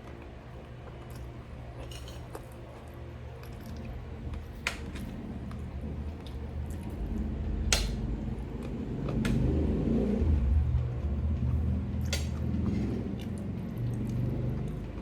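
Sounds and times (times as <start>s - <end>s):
wet chewing: 0.0s - 7.3s, 11.1s - 15.0s.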